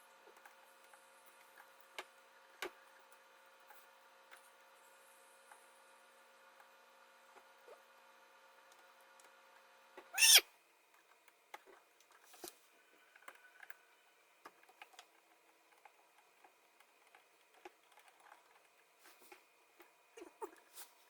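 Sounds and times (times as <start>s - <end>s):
faint clicks and taps: 10.9s - 20.8s.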